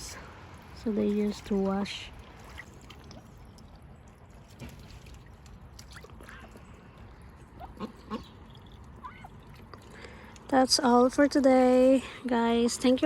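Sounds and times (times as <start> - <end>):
water trickling and dripping: 0.0 - 13.0
ducks splashing in water: 0.6 - 10.5.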